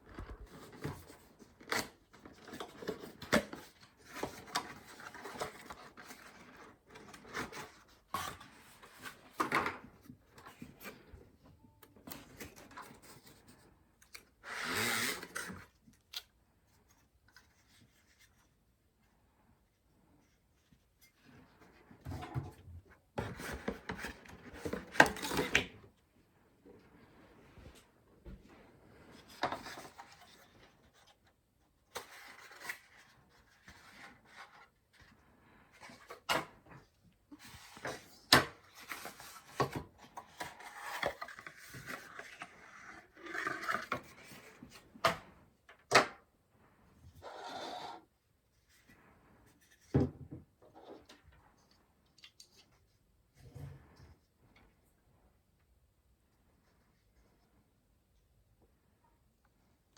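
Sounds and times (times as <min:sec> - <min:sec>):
hardware rubbing and scraping: 0:47.2 - 0:48.1.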